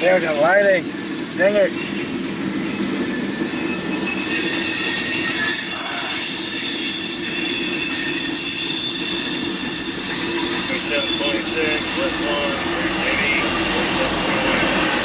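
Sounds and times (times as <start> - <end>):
low train rumble: 0.0 - 15.0
train wheels squealing on rail: 0.0 - 15.0.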